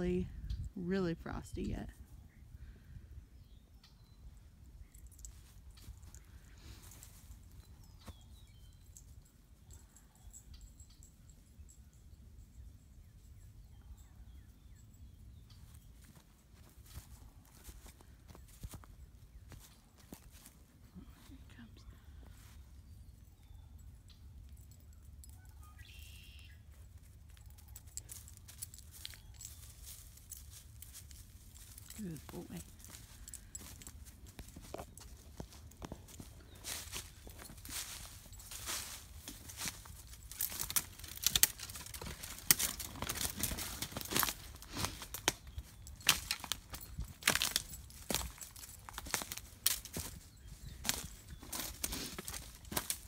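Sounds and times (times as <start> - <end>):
footsteps crunching on frozen ground: 15.5 - 22.8, 26.8 - 53.0.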